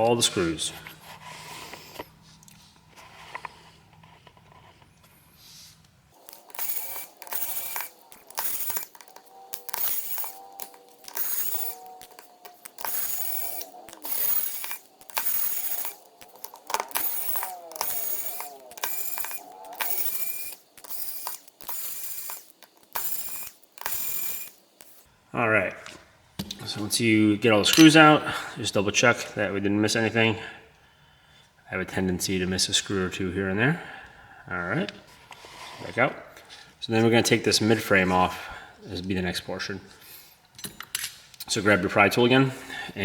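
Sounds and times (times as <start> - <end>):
screwdriver ratcheting and whirring: 6.2 - 25.1.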